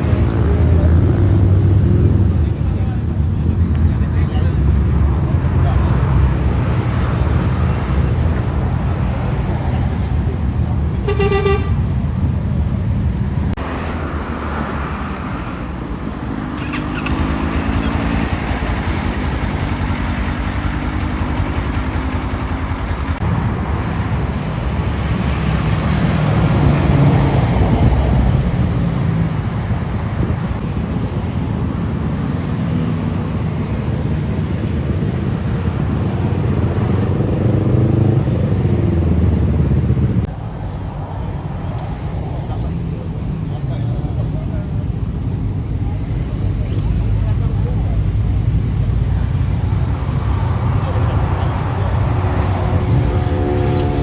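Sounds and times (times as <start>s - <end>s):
motorcycle engines passing by: 0.0s - 54.0s
short horn toot: 11.1s - 11.8s, 52.7s - 54.0s.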